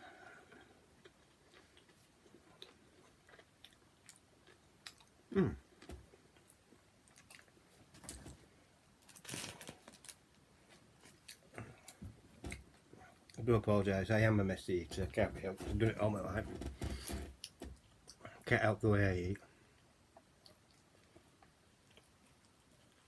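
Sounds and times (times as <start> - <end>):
man chewing sandwich: 0.0 - 8.3, 19.7 - 23.0.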